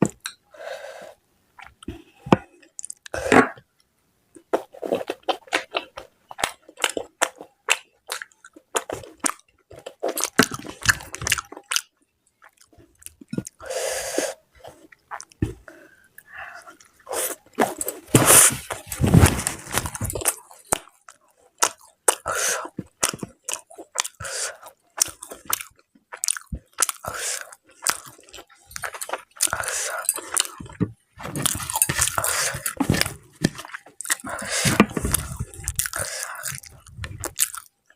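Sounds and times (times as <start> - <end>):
person chewing food: 1.6 - 3.5, 4.4 - 37.9.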